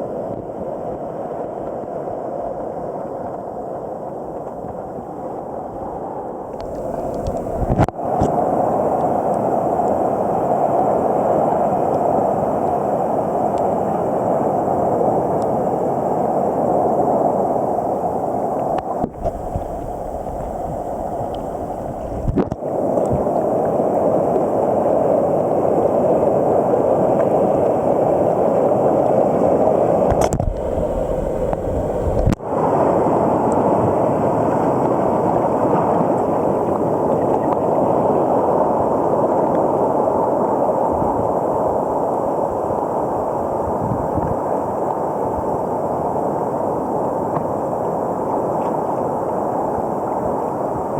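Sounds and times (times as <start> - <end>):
muffled rushing water and surf: 0.0 - 50.9.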